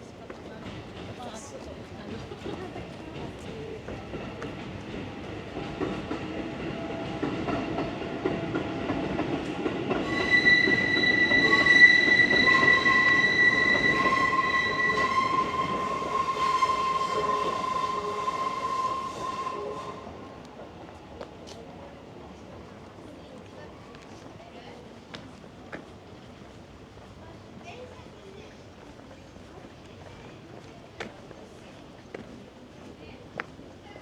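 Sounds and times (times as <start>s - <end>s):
train rumbling past: 0.0s - 24.2s
train wheel squeal: 10.0s - 20.2s.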